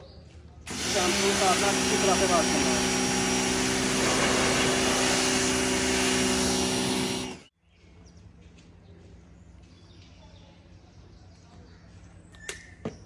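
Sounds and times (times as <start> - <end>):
pressure washer motor running: 0.7 - 7.5
water spray hissing: 0.7 - 7.5.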